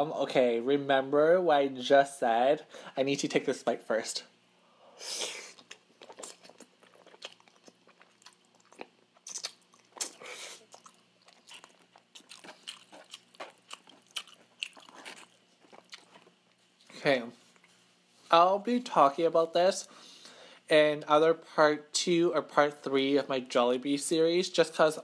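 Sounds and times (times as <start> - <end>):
person chewing with mouth clicks: 5.5 - 16.7.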